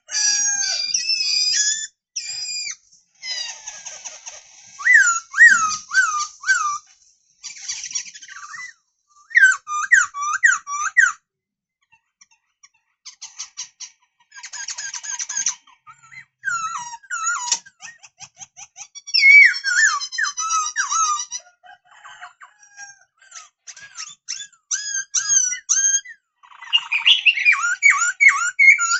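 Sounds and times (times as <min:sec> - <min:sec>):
bird whistled song: 0:00.6 - 0:02.8, 0:04.7 - 0:11.2, 0:19.1 - 0:21.2, 0:24.3 - 0:28.9
fast ticking bird chatter: 0:01.0 - 0:08.7, 0:12.8 - 0:21.2, 0:23.6 - 0:28.9.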